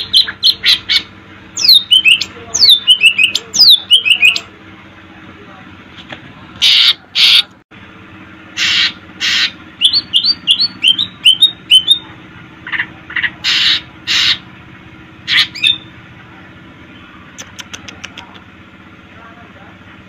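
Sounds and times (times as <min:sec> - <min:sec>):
bird singing rasping notes: 0:00.0 - 0:04.5, 0:08.6 - 0:14.5, 0:15.2 - 0:16.0.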